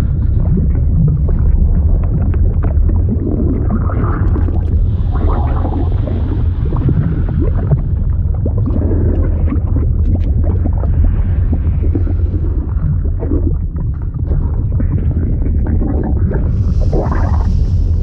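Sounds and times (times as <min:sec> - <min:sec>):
deep liquid rumble: 0:00.0 - 0:18.0
liquid gurgling and bubbling: 0:00.0 - 0:18.0.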